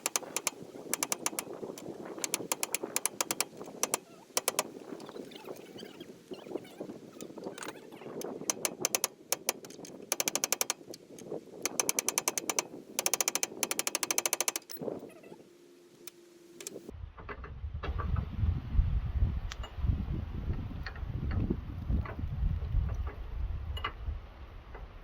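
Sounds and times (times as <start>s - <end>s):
ratchet wrench clicking: 0.0s - 1.6s, 2.2s - 4.7s, 8.5s - 10.9s, 11.7s - 14.8s.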